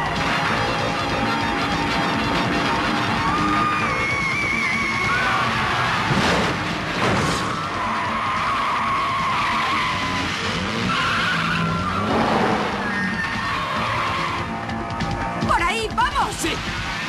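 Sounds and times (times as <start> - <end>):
car tyres squealing: 0.0 - 15.4
car engines running: 0.0 - 15.6, 16.2 - 17.0.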